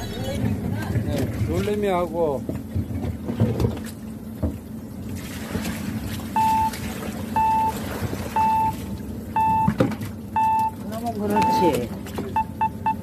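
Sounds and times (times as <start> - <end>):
boat engine hum: 0.0 - 13.0
fish and water splashing: 0.9 - 13.0
short electronic beeps: 6.4 - 6.8, 7.4 - 7.8, 8.4 - 8.8, 9.4 - 9.8, 10.4 - 11.8, 12.4 - 13.0.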